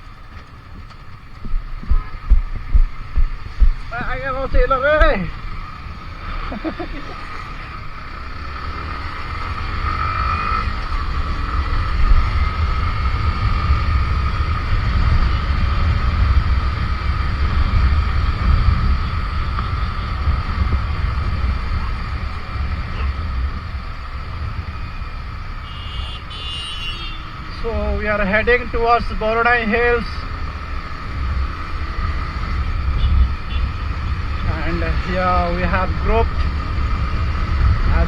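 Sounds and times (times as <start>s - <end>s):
wind buffeting microphone: 0.0s - 6.8s, 10.6s - 25.6s
motorcycle engine: 0.0s - 38.0s
road noise: 0.0s - 38.0s.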